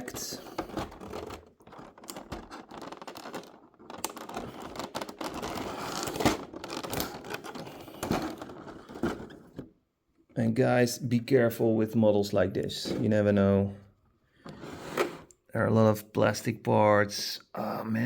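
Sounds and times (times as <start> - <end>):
plastic packaging crinkling: 0.0 - 9.4
plastic packaging tearing: 1.0 - 8.8.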